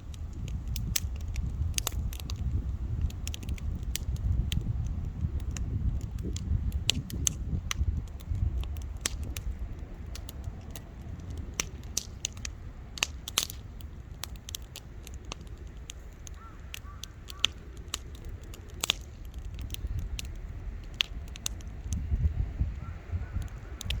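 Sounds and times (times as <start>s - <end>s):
campfire crackling: 0.0s - 24.0s
low rumble: 18.1s - 24.0s.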